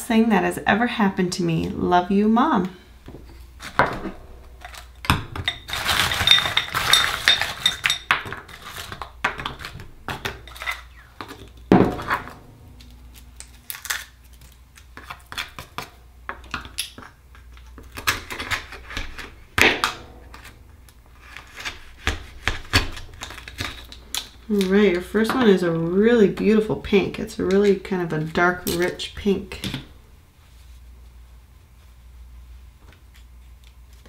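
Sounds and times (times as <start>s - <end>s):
louder knocks: 11.7s - 13.4s.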